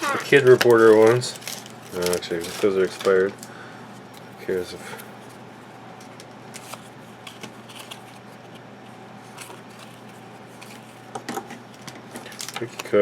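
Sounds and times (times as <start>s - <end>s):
cards and foil pack rustling: 0.0s - 3.7s, 6.0s - 13.0s.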